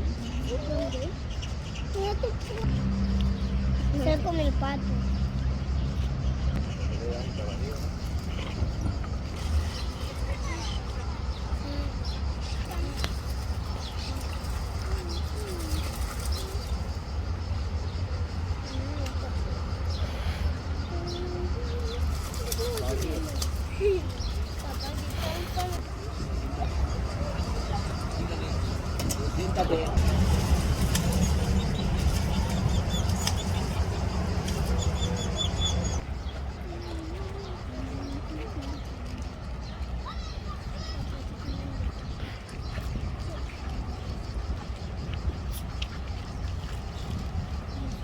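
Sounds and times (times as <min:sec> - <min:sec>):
small birds chirping: 0:00.0 - 0:48.0
steady low rumble: 0:01.2 - 0:15.2, 0:23.3 - 0:36.6
small bird chirping: 0:30.9 - 0:38.8.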